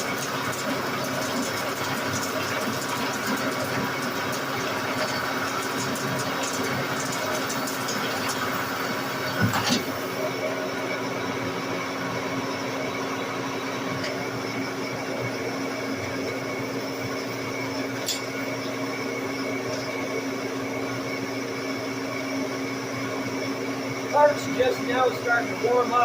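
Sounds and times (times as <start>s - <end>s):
lathe humming: 10.0s - 26.0s.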